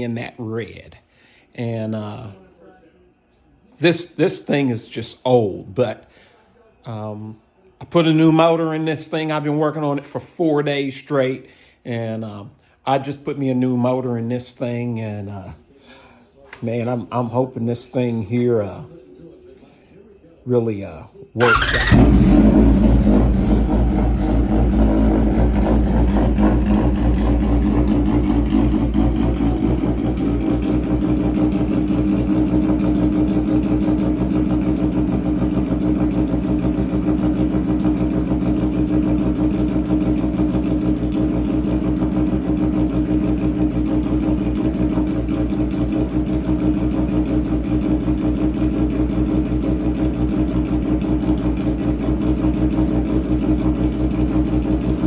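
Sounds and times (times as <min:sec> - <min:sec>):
motorcycle engine idling: 0:21.4 - 0:55.0.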